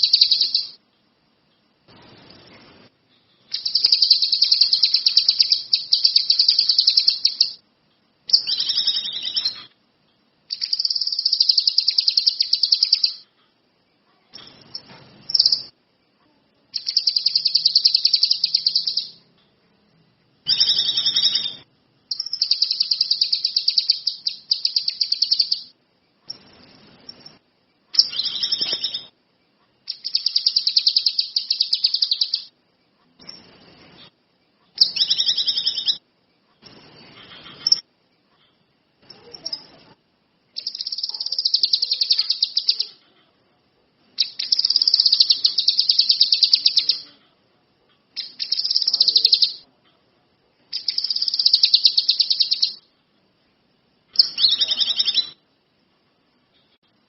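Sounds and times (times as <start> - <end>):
songbird trilling: 0.0 - 0.8, 3.5 - 7.6, 8.3 - 9.7, 10.5 - 13.2, 16.8 - 19.2, 20.5 - 25.7, 28.0 - 29.1, 29.9 - 32.5, 34.8 - 36.0, 40.6 - 43.0, 44.2 - 47.0, 48.2 - 49.6, 50.8 - 52.8, 54.2 - 55.4.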